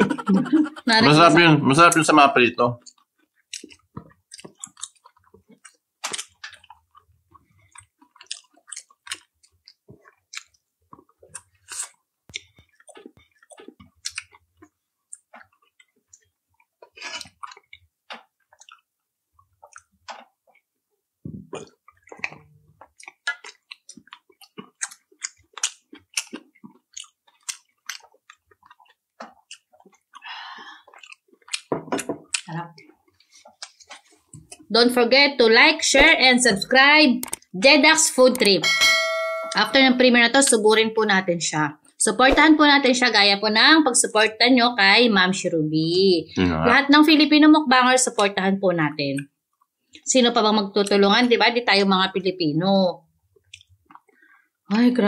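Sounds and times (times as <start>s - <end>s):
people chewing with wet smacks: 2.8s - 34.7s, 36.6s - 37.6s, 49.2s - 50.2s, 53.3s - 54.4s.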